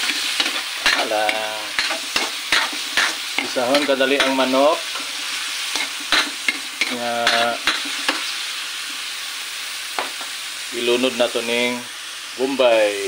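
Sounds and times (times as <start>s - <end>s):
spatula scraping a wok: 0.0s - 8.6s
chicken sizzling in hot oil: 0.0s - 13.0s.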